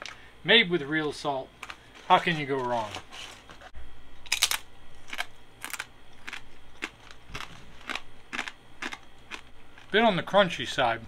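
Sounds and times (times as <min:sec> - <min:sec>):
crunching crispy food: 0:04.3 - 0:10.0.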